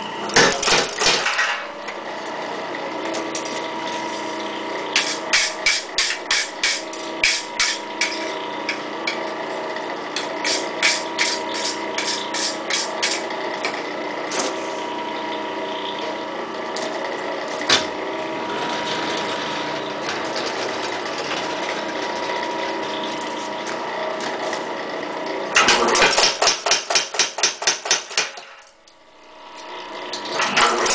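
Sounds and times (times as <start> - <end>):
steady machine hum: 0.0 - 30.9
power hammer striking hot metal: 0.4 - 1.7, 5.0 - 8.3, 25.6 - 28.4.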